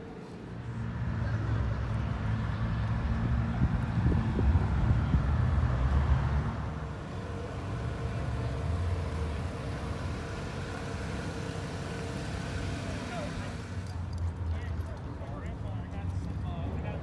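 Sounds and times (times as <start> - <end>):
car engine rumbling: 6.6 - 14.2.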